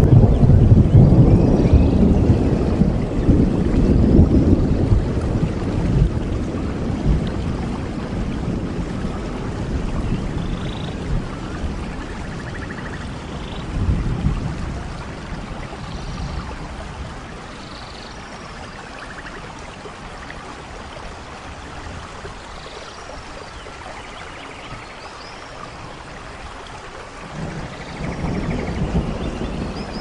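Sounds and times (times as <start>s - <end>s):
low rumble of thunder: 0.0s - 22.8s, 25.7s - 30.0s
steady rain falling: 0.0s - 30.0s.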